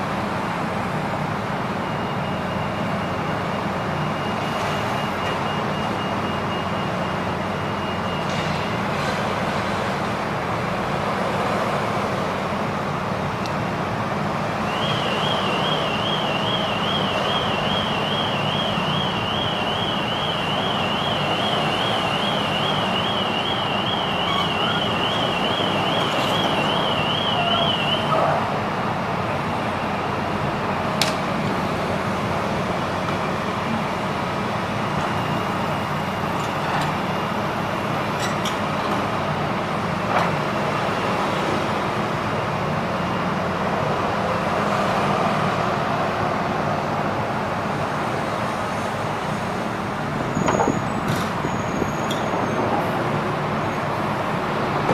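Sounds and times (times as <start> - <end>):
traffic noise: 0.0 - 54.9
warbling electronic alarm: 14.7 - 28.2.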